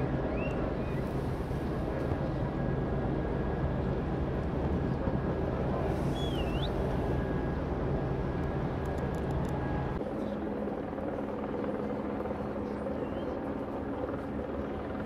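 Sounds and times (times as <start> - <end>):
low engine drone: 0.0 - 10.5.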